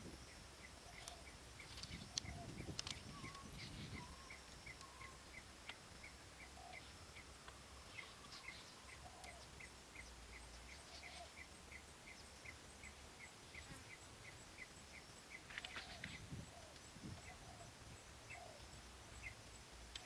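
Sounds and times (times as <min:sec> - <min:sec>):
cluster of clicks: 0:01.0 - 0:03.5, 0:15.5 - 0:16.9.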